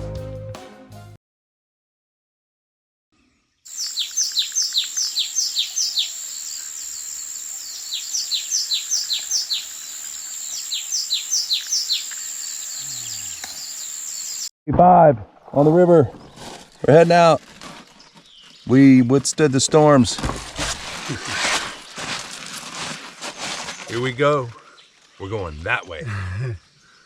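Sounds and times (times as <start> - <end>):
songbird whistling: 3.7 - 6.2, 7.6 - 14.5.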